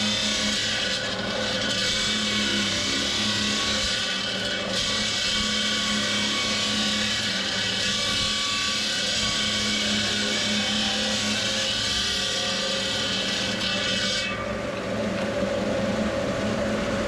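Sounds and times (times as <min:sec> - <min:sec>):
machine hum: 0:14.4 - 0:17.0.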